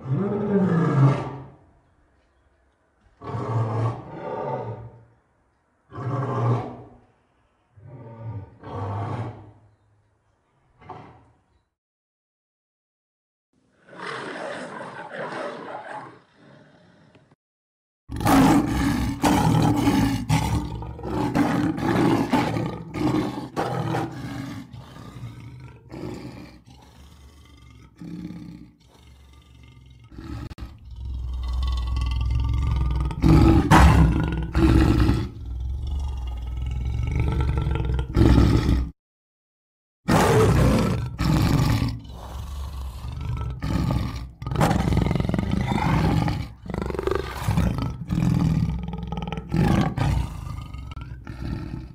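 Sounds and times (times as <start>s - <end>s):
lions roaring and grunting: 18.1s - 39.0s, 40.1s - 51.9s.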